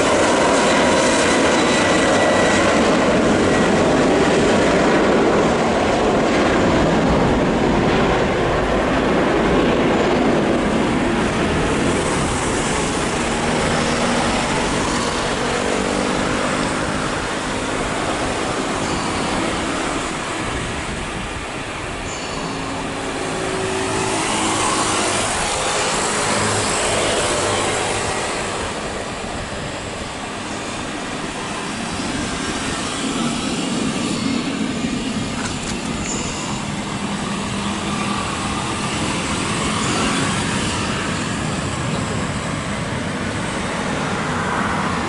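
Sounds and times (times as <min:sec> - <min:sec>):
jet engines running: 0:00.0 - 0:45.0.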